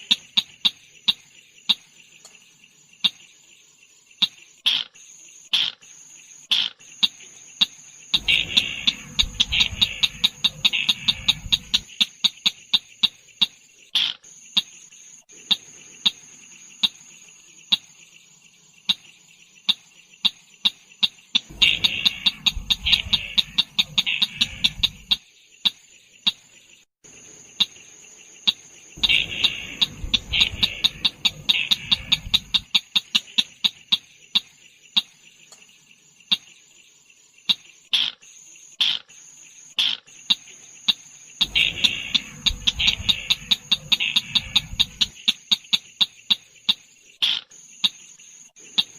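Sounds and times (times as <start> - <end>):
recorded bird call: 0.0 - 48.9
steady high-pitched whine: 8.0 - 11.9, 21.4 - 25.2, 27.1 - 32.8, 41.3 - 45.2.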